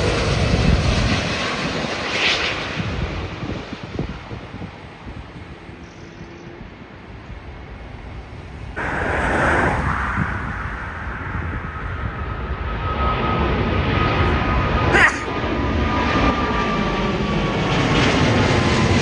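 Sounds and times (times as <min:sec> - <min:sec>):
jet engines roaring: 0:00.0 - 0:14.8
wind buffeting microphone: 0:02.6 - 0:14.3.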